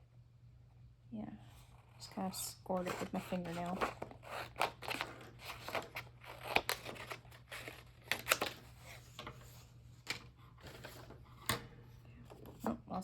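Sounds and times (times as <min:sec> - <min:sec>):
scissors snipping paper: 0:02.7 - 0:08.6.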